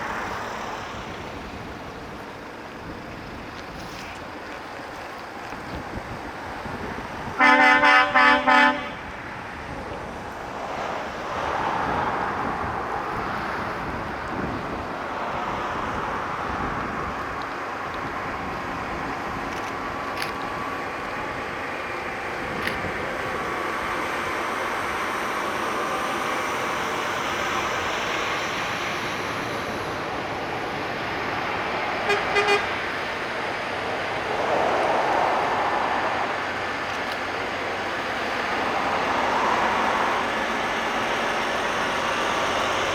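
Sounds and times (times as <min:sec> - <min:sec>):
heavy trucks rolling past: 0:00.0 - 0:42.9
truck horn blasts: 0:07.4 - 0:09.1, 0:32.0 - 0:32.9
faint horn toots: 0:32.0 - 0:32.7.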